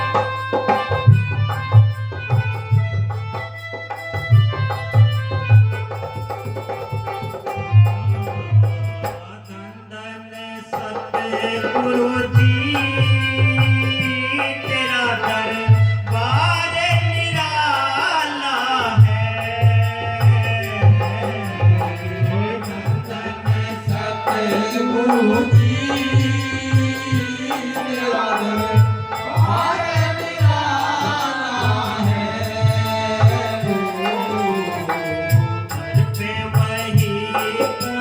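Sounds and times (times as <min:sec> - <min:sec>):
hand drum rhythm: 0:00.0 - 0:09.1, 0:19.0 - 0:38.0
instrumental accompaniment: 0:00.0 - 0:38.0
person singing devotional song: 0:00.0 - 0:38.0.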